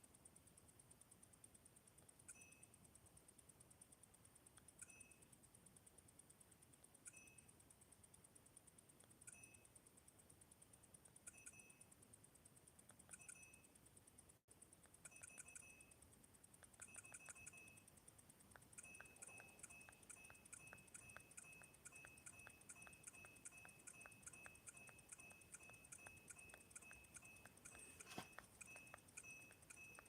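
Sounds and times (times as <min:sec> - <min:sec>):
mobile phone beeps: 0:02.3 - 0:02.7, 0:04.8 - 0:05.3, 0:07.1 - 0:07.5, 0:09.3 - 0:09.7, 0:11.3 - 0:11.9, 0:13.1 - 0:13.7, 0:15.0 - 0:16.0, 0:16.8 - 0:17.9, 0:18.8 - 0:30.0.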